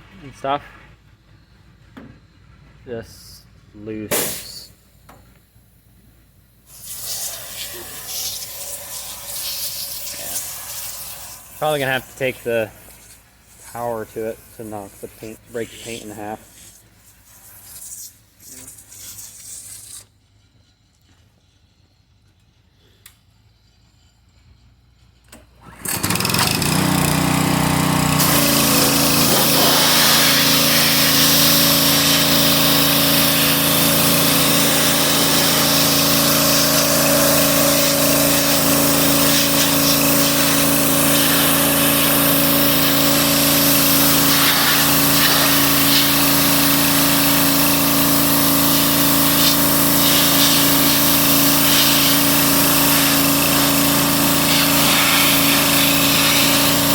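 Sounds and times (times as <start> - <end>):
small gasoline engine running: 6.7 - 16.3, 25.5 - 56.9.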